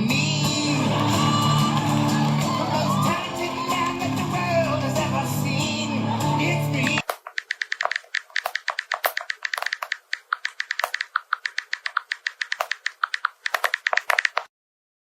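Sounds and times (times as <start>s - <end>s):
rapid light clicks: 7.0s - 14.5s.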